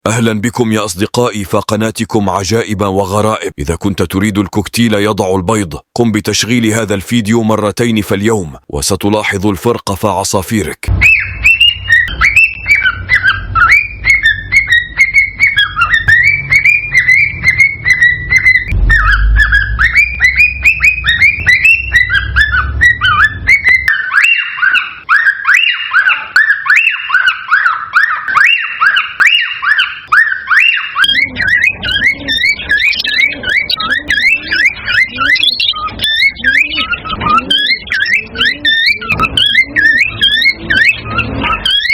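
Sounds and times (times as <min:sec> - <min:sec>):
cockatiels whistling and chirping: 0:11.0 - 0:41.9
low rumble: 0:18.7 - 0:23.7.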